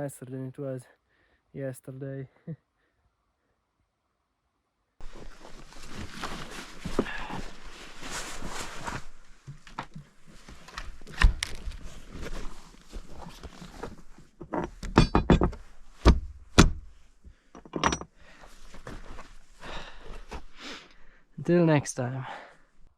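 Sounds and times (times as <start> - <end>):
irregular knocks and thuds: 14.4 - 18.1.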